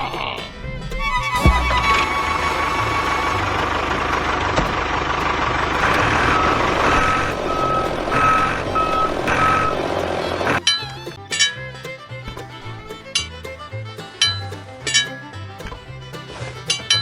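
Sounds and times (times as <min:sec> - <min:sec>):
reversing alarm beeping: 0:05.8 - 0:09.8.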